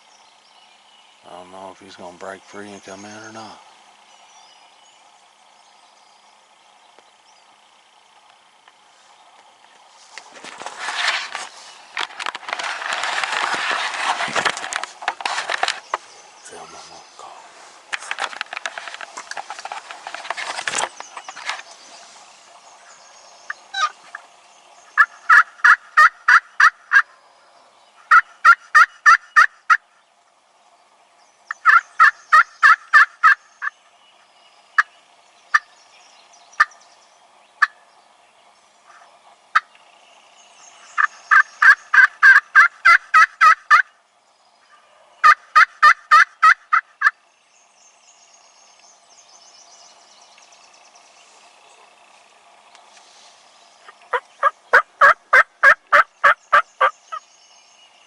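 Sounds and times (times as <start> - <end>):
rustle: 0.0 - 58.0
turkey call yelps: 23.5 - 24.0, 25.0 - 29.8, 31.5 - 33.7, 37.6 - 37.8, 40.9 - 43.9, 44.7 - 47.2, 53.8 - 57.0
turkey call clucks: 23.5 - 24.2, 25.0 - 27.3, 28.0 - 29.8, 31.5 - 33.7, 35.5 - 35.7, 37.6 - 37.8, 40.9 - 43.9, 44.7 - 47.2, 53.8 - 57.0.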